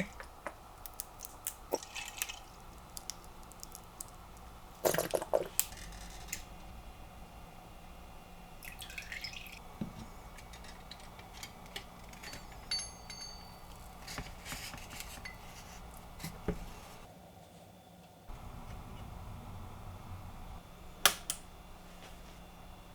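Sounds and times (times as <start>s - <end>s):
metal parts and glassware clinking: 10.0s - 15.5s
faint low hum: 18.3s - 22.9s.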